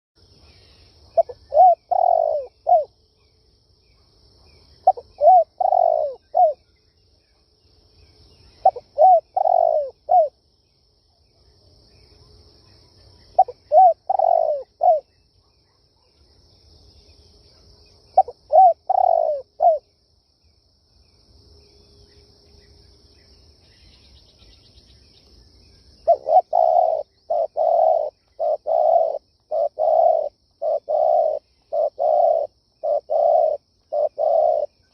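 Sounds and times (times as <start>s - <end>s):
dove cooing: 1.1s - 2.9s, 4.8s - 6.6s, 8.6s - 10.3s, 13.4s - 15.1s, 18.2s - 19.8s, 26.0s - 34.8s.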